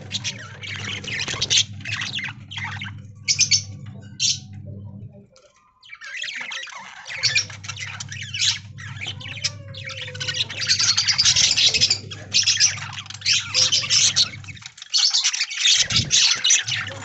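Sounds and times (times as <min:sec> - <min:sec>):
budgerigars chattering and squawking: 0:00.0 - 0:05.0, 0:05.8 - 0:17.0
low steady hum: 0:00.0 - 0:05.6, 0:07.1 - 0:14.8.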